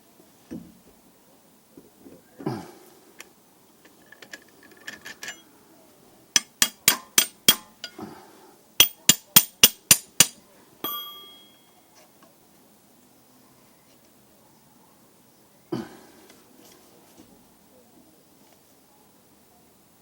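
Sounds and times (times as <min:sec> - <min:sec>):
faint metallic clinks: 0:03.8 - 0:05.5, 0:06.3 - 0:08.0, 0:10.8 - 0:12.0
hammer striking metal: 0:06.4 - 0:08.0, 0:08.8 - 0:11.6
metal clang ringing: 0:06.4 - 0:08.0, 0:08.8 - 0:11.8.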